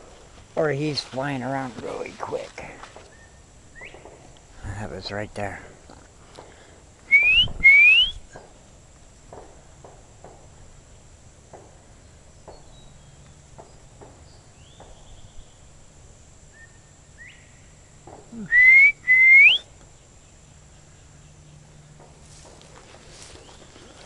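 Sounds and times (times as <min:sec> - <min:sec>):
person whistling bird call: 0:07.1 - 0:08.3, 0:18.3 - 0:19.7.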